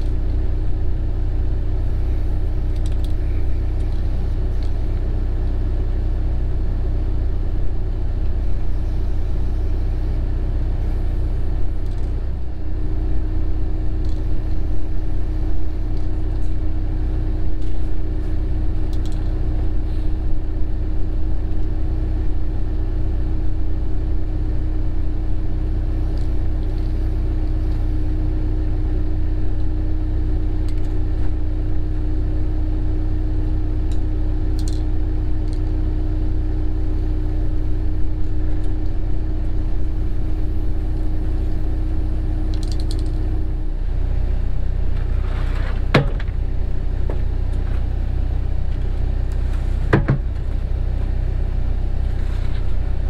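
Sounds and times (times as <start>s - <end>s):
excavator diesel engine running: 0.0s - 53.0s
steady hum: 0.0s - 53.0s
sharp knocks: 49.9s - 50.3s.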